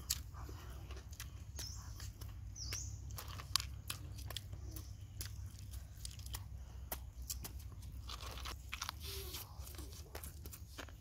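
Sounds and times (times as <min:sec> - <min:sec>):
crunching and chewing food: 0:00.0 - 0:11.0.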